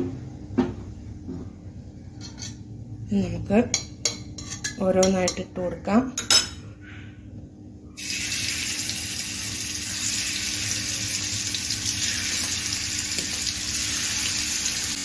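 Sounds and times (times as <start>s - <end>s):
prawns sizzling in hot oil: 8.0s - 15.0s.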